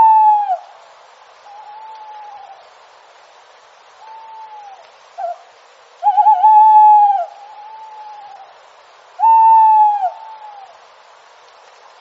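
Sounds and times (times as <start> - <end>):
owl hooting: 0.0 - 0.7, 1.5 - 2.6, 4.0 - 5.4, 6.0 - 8.5, 9.2 - 10.8.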